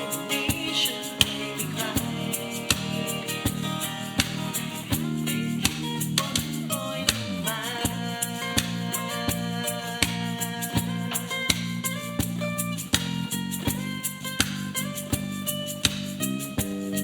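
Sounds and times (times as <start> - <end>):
band playing pop song: 0.0 - 11.0
guitars: 0.0 - 17.0
percussion beat: 0.0 - 17.0.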